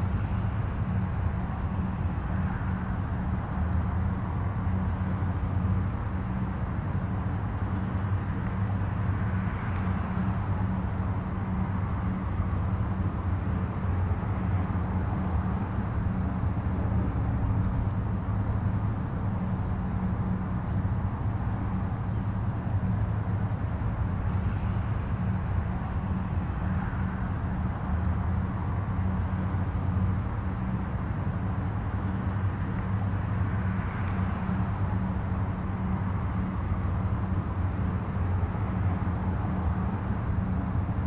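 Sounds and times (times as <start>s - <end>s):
distant highway traffic rumble: 0.0s - 41.0s.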